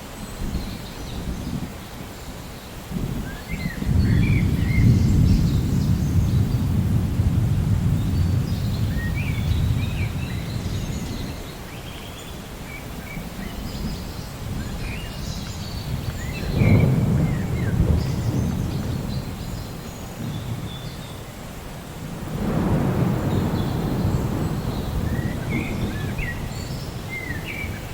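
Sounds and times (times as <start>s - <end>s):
deep thunder rumble: 2.9s - 11.4s, 13.5s - 21.0s, 21.9s - 27.9s
birds chirping and whistling: 3.3s - 6.6s, 8.0s - 21.2s, 23.2s - 27.9s.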